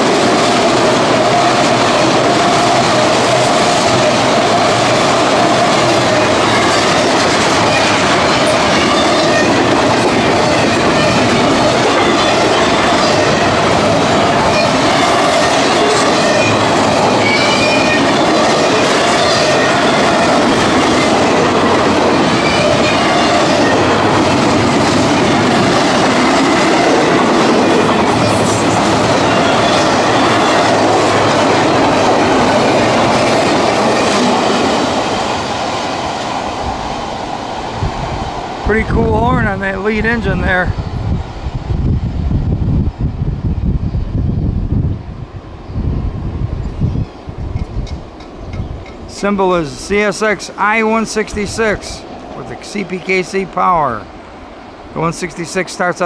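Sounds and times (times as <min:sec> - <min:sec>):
train wheels clattering on rails: 0:00.0 - 0:38.6, 0:47.0 - 0:49.2.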